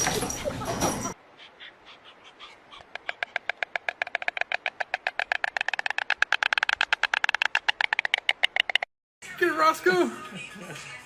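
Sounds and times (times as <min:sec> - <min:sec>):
animal chirping calls: 0:01.2 - 0:08.7.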